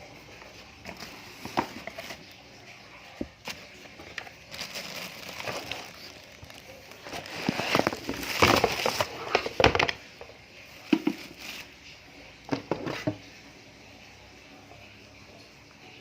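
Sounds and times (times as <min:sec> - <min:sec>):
packaging rustling and crinkling: 0:00.6 - 0:10.0, 0:10.8 - 0:11.7.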